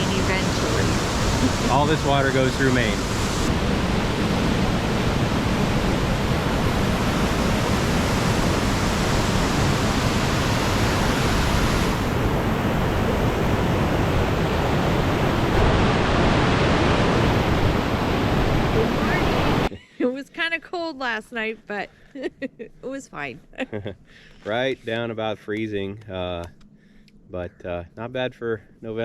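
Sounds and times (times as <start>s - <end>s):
waterfall rushing: 0.0s - 19.7s.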